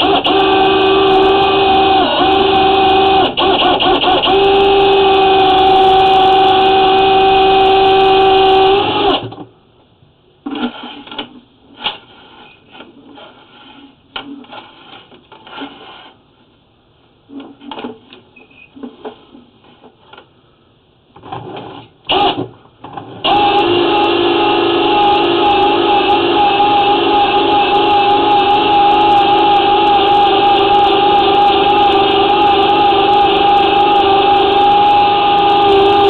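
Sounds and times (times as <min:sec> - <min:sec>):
drain-cleaning machine motor whine: 0:00.0 - 0:09.3, 0:23.2 - 0:36.0.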